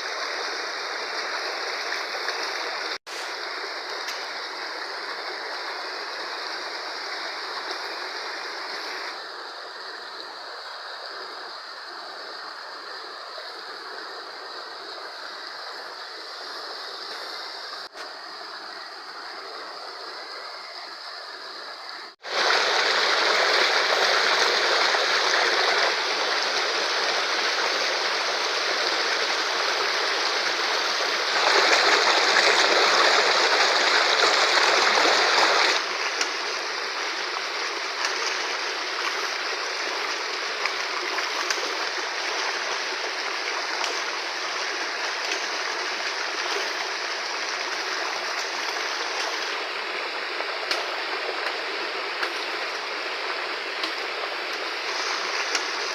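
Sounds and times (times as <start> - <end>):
river rushing: 22.1 - 55.9.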